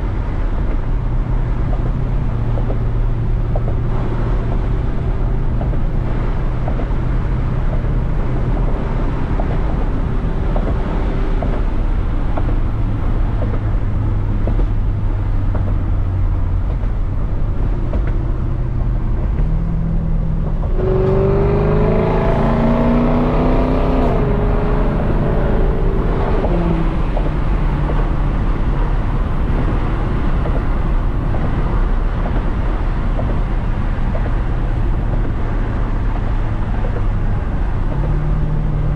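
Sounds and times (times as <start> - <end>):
car exhaust drone and accelerating: 0.0 - 38.9.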